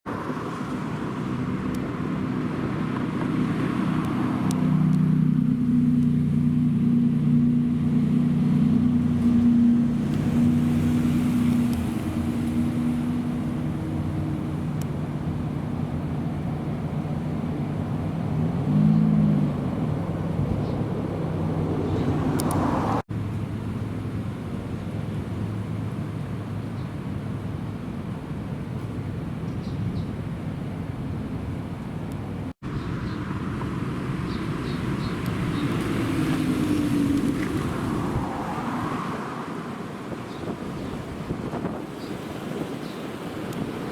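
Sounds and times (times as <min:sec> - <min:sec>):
car engines idling: 0:00.1 - 0:18.5.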